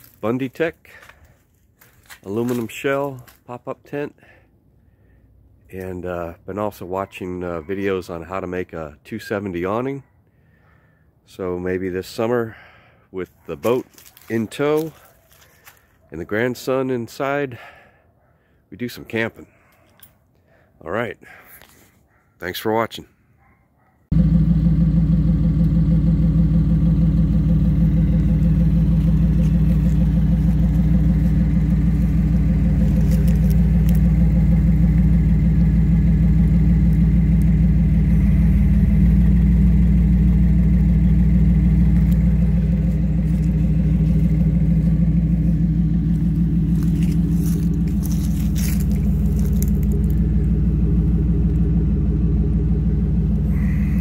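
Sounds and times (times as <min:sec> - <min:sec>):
truck engine droning: 0:24.1 - 0:54.0.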